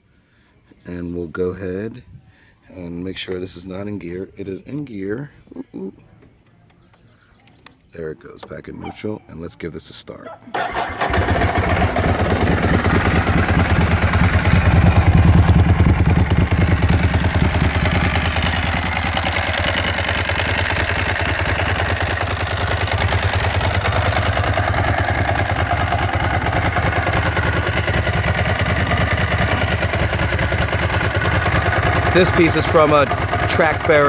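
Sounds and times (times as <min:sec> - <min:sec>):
motorcycle engine idling: 0:10.6 - 0:34.0.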